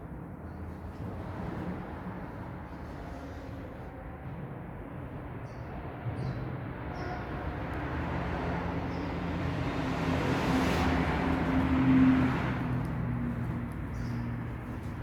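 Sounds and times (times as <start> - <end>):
road noise: 7.8 - 15.0.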